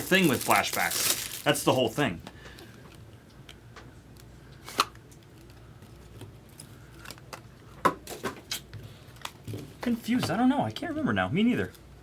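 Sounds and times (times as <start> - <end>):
card packs clicking and handling: 0.0 - 1.9.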